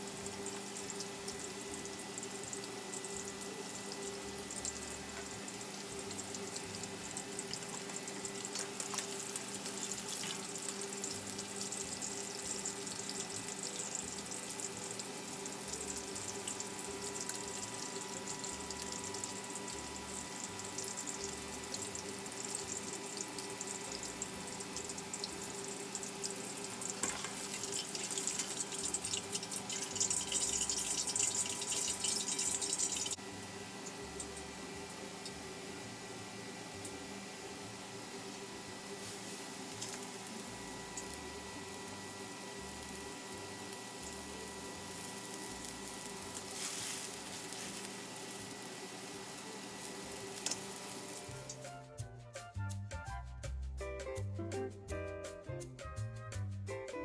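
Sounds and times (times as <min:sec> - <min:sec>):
electrical hum: 0:00.0 - 0:51.6
tap water running into sink: 0:00.4 - 0:33.2.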